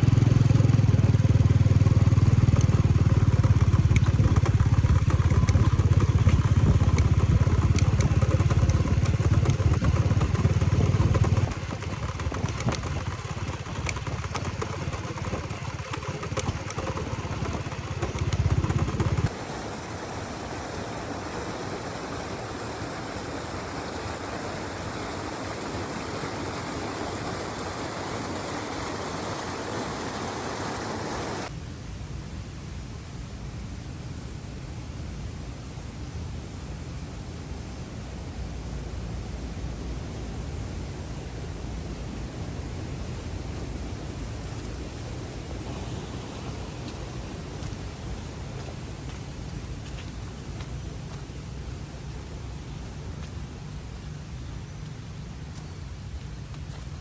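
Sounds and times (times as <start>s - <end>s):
motorcycle engine running: 0.0s - 19.4s, 38.6s - 54.2s
steady even hiss: 0.0s - 57.0s.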